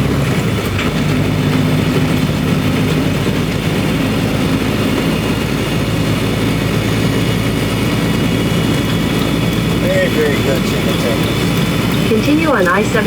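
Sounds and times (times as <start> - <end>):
road noise: 0.0 - 13.0
truck diesel engine running: 0.0 - 13.0.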